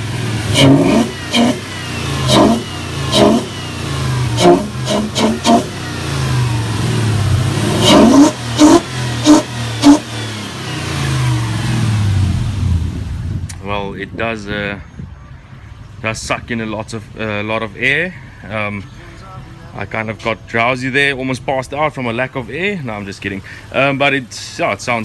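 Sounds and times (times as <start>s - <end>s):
engine revving: 0.0s - 13.6s.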